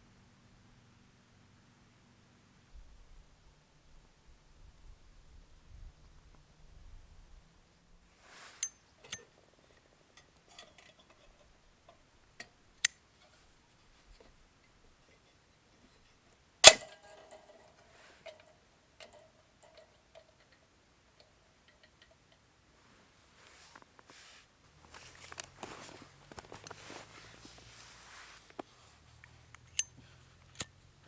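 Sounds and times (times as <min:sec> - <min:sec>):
loud metallic clink: 0:16.6 - 0:17.4.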